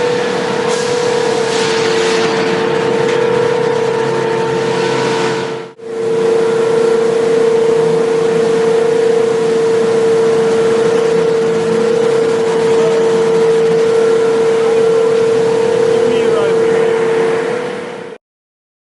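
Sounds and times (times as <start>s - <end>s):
furnace hum: 0.0s - 18.2s.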